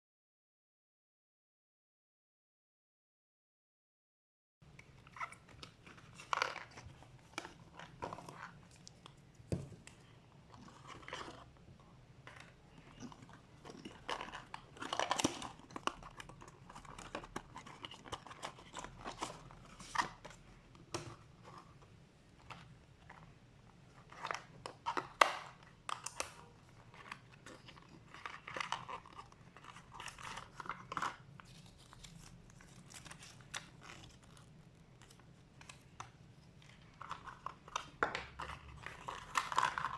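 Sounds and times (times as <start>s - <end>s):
plastic packaging crinkling: 12.3s - 20.3s, 23.9s - 39.9s.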